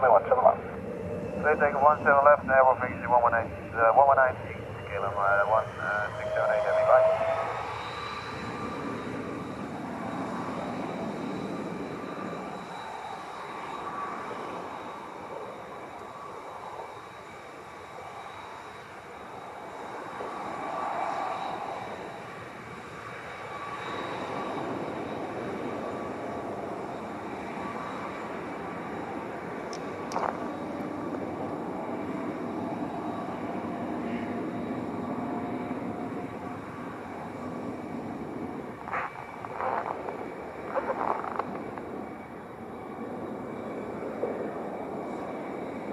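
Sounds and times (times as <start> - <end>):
jet engines running: 0.0 - 45.9.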